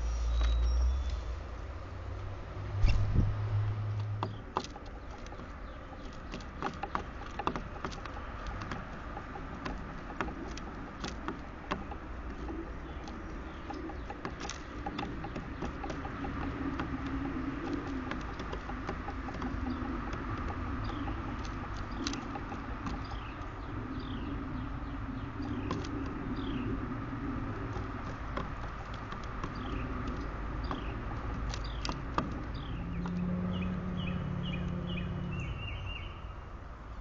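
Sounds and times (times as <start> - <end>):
small birds chirping: 0.0 - 1.7, 4.0 - 37.0
low hum and rumble: 0.0 - 37.0
sharp clicks: 4.0 - 33.4.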